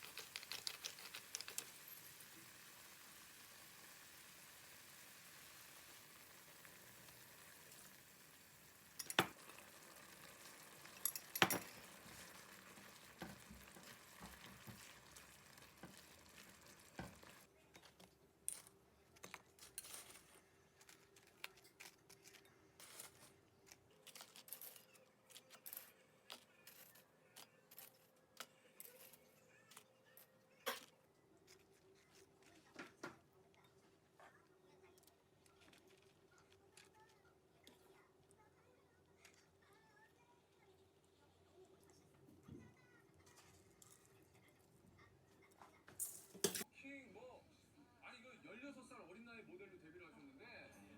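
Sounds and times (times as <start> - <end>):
utensils clinking against dishes: 0.0 - 2.6, 8.9 - 9.7, 10.8 - 12.5, 46.0 - 46.7
food sizzling in a pan: 0.0 - 17.5.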